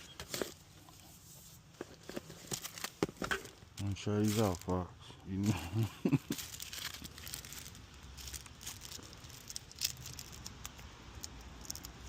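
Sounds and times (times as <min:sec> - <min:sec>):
fishing tackle and packaging rustling: 0:00.0 - 0:12.0.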